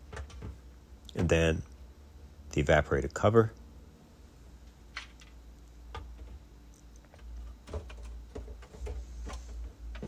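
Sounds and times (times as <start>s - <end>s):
plastic fridge parts clicking: 0.0s - 1.3s, 5.0s - 6.4s, 7.0s - 10.0s.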